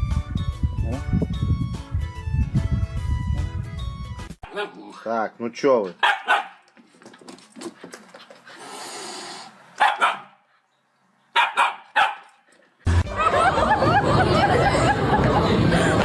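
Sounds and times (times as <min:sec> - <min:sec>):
dog barking: 0:04.4 - 0:04.9, 0:06.0 - 0:06.6, 0:09.8 - 0:10.4, 0:11.3 - 0:12.3.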